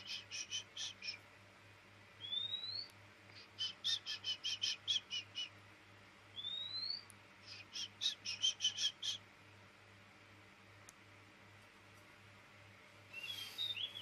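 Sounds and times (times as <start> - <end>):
bird singing whistles and notes: 2.2 - 2.9, 6.3 - 7.1, 13.1 - 14.0.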